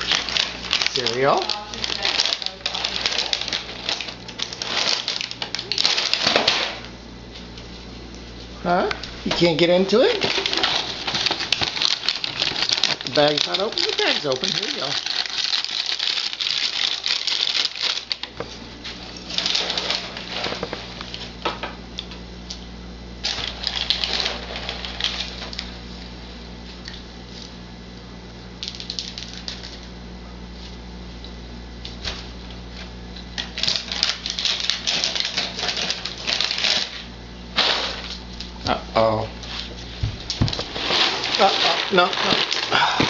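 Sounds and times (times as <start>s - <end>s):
cereal pieces scattering: 0.0s - 6.8s, 9.4s - 18.3s, 23.2s - 25.7s, 33.4s - 38.2s, 40.2s - 43.0s
cereal rattling in plastic bag: 0.0s - 6.8s, 9.3s - 18.3s, 19.2s - 20.8s, 23.2s - 25.8s, 28.6s - 29.9s, 33.4s - 38.2s, 40.2s - 43.0s
low steady hum: 0.0s - 43.0s.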